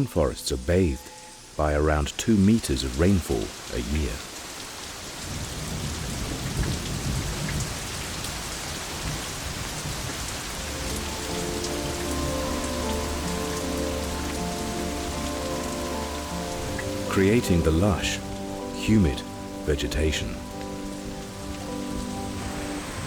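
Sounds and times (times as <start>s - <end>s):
heavy rain: 0.0s - 23.0s
low rumble of thunder: 5.2s - 11.6s.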